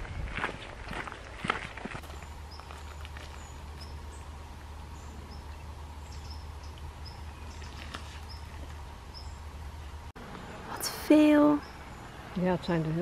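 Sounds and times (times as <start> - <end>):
small bird chirping: 2.0 - 4.3, 4.9 - 12.5.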